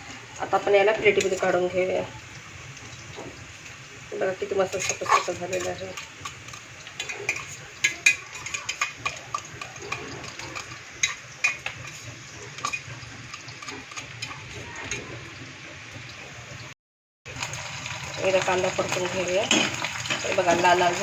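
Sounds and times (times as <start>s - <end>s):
onions sizzling in a pan: 0.0s - 16.7s, 17.3s - 21.0s
spoon scraping a pan: 4.6s - 15.0s.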